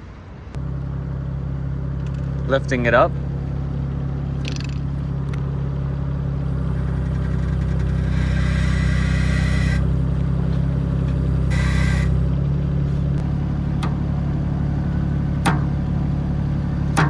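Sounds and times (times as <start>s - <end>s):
skid steer engine running: 0.6s - 17.0s
hiss: 6.4s - 12.3s.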